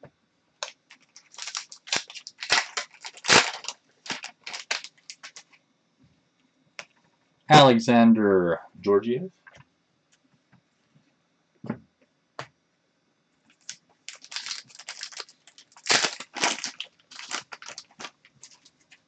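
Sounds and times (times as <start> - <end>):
cards and wrapper rustling: 0.6 - 5.5, 13.6 - 19.0.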